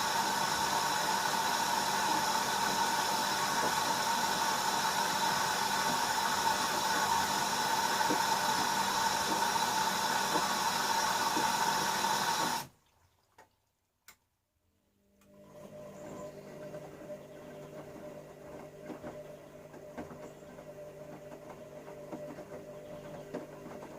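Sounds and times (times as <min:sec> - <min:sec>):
water rushing through inlet valve: 0:00.0 - 0:12.8
low machine hum: 0:15.0 - 0:23.9.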